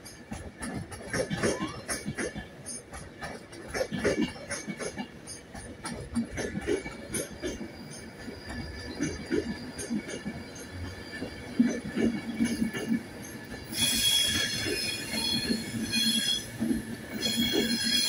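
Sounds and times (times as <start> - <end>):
high-pitched wheel squeal: 13.6 - 18.0.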